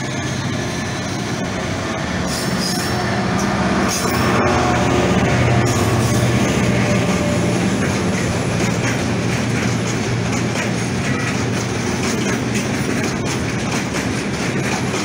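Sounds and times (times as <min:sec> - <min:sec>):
freight train rumbling past: 0:00.0 - 0:15.0
wheels clacking over rail joints: 0:00.0 - 0:15.0.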